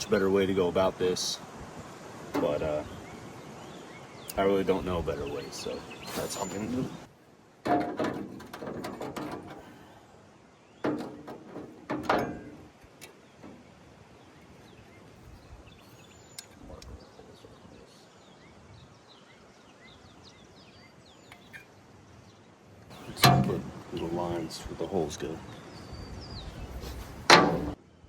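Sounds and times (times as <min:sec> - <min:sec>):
small birds chirping: 0:00.0 - 0:07.6, 0:08.3 - 0:28.0
tools knocking and scraping: 0:07.6 - 0:09.8, 0:10.8 - 0:13.6, 0:23.0 - 0:23.9, 0:27.3 - 0:27.8.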